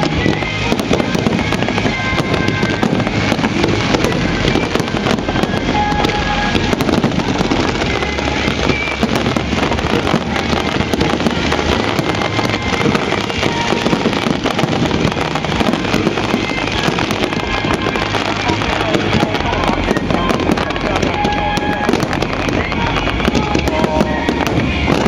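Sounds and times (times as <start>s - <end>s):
fireworks banging and crackling: 0.0s - 25.0s.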